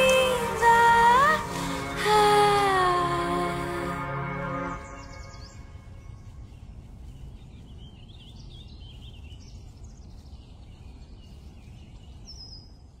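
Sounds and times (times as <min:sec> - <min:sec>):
steady low rumble: 0:00.0 - 0:13.0
small birds chirping: 0:04.7 - 0:13.0.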